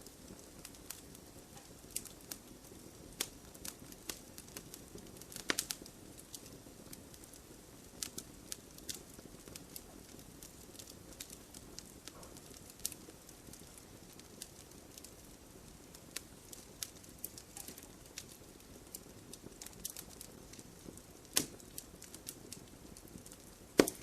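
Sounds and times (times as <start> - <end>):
wood fire crackling and popping: 0.0 - 24.0.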